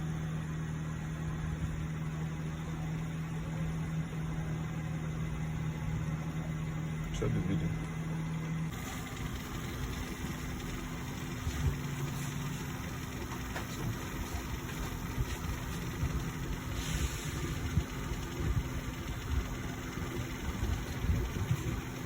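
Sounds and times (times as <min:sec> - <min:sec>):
low droning hum: 0:00.0 - 0:22.0
short hiss: 0:16.7 - 0:17.6.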